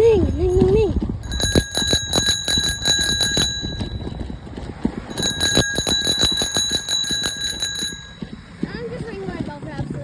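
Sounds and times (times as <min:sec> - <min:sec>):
bicycle bell ringing: 0:00.0 - 0:08.6.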